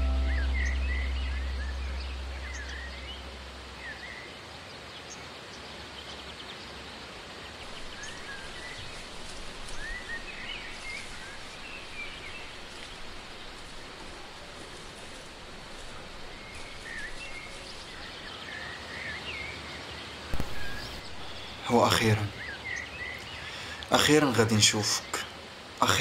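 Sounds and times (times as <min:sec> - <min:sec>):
deep sustained tone: 0:00.0 - 0:04.0
outdoor background noise: 0:00.0 - 0:26.0
small birds chirping: 0:00.0 - 0:26.0.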